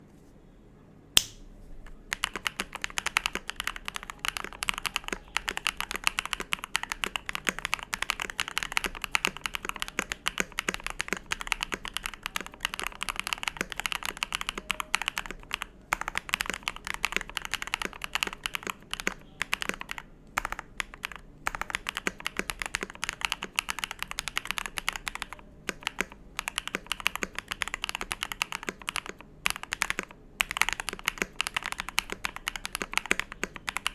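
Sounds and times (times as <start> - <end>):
sharp click: 1.2 - 1.5
mechanical keyboard typing: 1.9 - 33.9.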